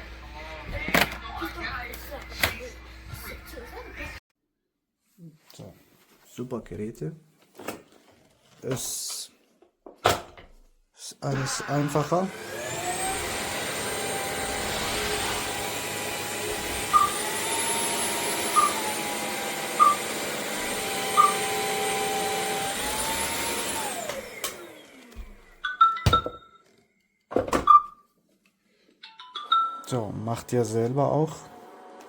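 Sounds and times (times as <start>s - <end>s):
vacuum motor whining: 11.4s - 25.6s.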